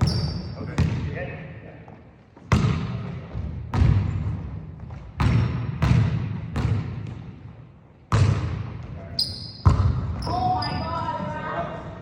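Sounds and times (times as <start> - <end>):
basketball bouncing on hardwood: 2.5 - 7.2, 8.1 - 8.6, 9.6 - 10.2.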